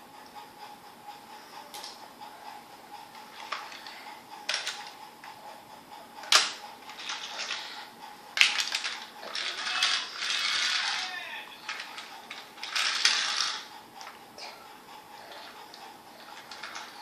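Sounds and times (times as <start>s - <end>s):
toy train pieces clicking: 1.7s - 2.0s, 3.3s - 5.0s, 6.2s - 7.8s, 8.4s - 14.2s, 15.3s - 17.0s.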